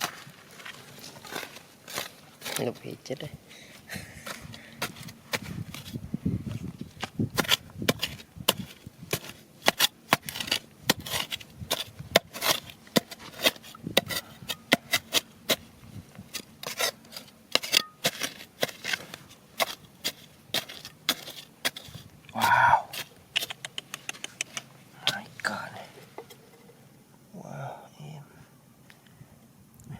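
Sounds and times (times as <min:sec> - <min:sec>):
digging among stones and gravel: 0:00.0 - 0:23.6.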